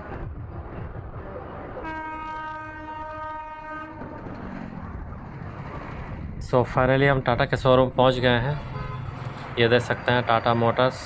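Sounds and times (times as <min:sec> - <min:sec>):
traffic and road noise: 0:00.0 - 0:11.0
long horn blast: 0:01.8 - 0:04.4, 0:08.6 - 0:09.2.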